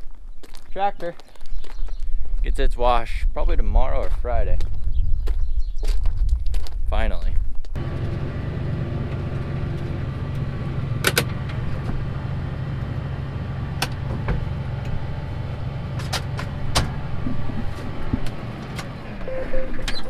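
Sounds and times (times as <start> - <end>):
vehicle engine humming: 7.8 - 20.0
sharp clicks or knocks: 11.0 - 12.0.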